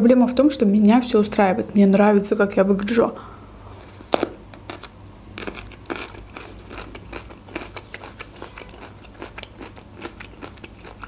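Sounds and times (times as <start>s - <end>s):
chewing food wet clicks: 4.5s - 11.0s.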